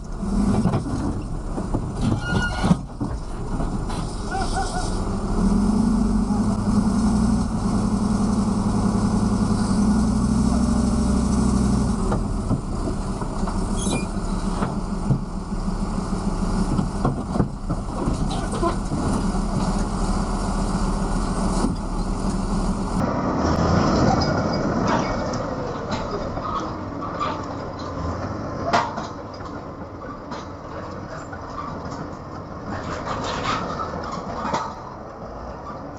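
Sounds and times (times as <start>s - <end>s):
vehicle engine and road noise: 0.0s - 35.9s
short squeaks and knocks: 1.2s - 3.2s, 12.1s - 15.3s.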